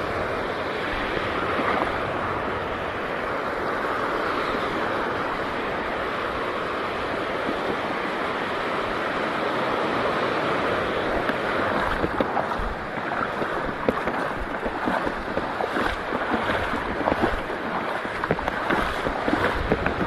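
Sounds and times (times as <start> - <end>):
sea surf rushing: 0.0 - 20.0
wind buffeting microphone: 10.5 - 20.0
sharp ticks and splashes: 11.1 - 20.0.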